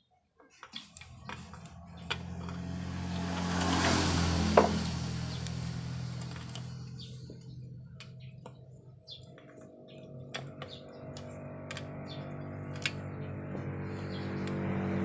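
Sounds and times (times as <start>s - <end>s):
metal parts clicking and tapping: 0.6s - 4.0s, 5.4s - 13.0s
vehicle engine humming: 0.7s - 15.0s.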